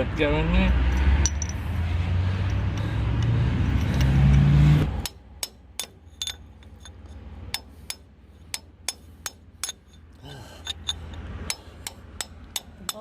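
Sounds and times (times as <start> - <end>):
engine running: 0.6 - 12.9
sharp metallic taps: 2.4 - 10.0.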